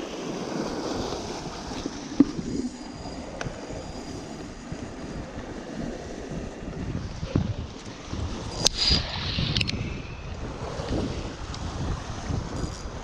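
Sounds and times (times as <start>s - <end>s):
water: 0.0s - 13.0s
wind: 0.0s - 13.0s.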